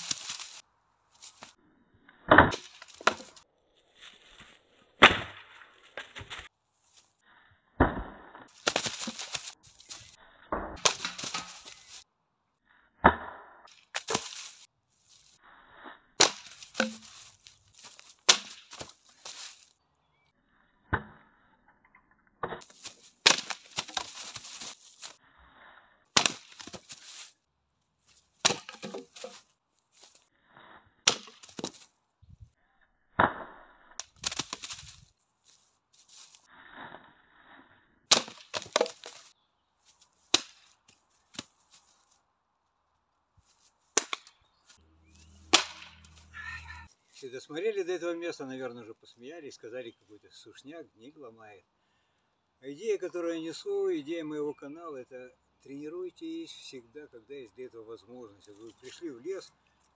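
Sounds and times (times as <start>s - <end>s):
branches snapping and splintering: 0.0s - 0.6s, 8.5s - 10.2s, 10.8s - 12.0s, 13.8s - 14.7s, 16.2s - 19.7s, 22.6s - 25.2s, 26.2s - 27.3s, 31.1s - 31.9s, 34.0s - 35.1s, 38.1s - 39.3s, 40.3s - 42.0s, 45.4s - 46.2s.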